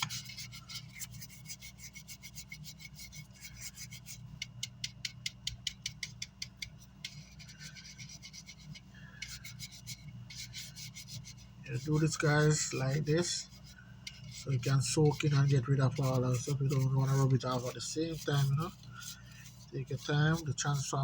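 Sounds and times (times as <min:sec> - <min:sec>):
low electrical hum: 0:00.0 - 0:21.0
scrubbing circuit board: 0:07.1 - 0:21.0.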